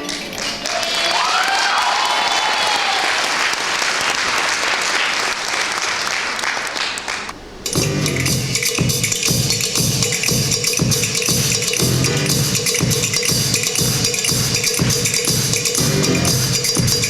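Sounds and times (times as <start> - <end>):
audience applauding: 0.0 - 7.5
music with steady beat: 7.7 - 17.0.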